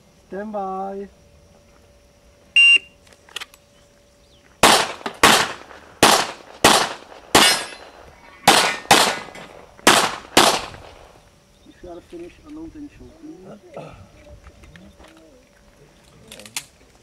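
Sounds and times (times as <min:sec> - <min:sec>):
pistol shots with echo: 0:04.6 - 0:11.1.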